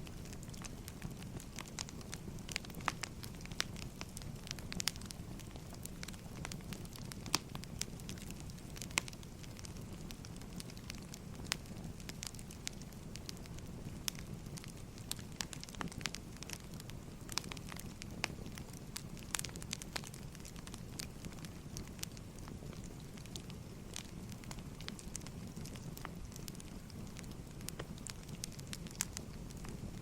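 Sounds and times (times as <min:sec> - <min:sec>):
low rumble of flames: 0:00.0 - 0:30.0
firewood popping and snapping: 0:00.2 - 0:07.5, 0:14.1 - 0:22.2, 0:22.8 - 0:29.8.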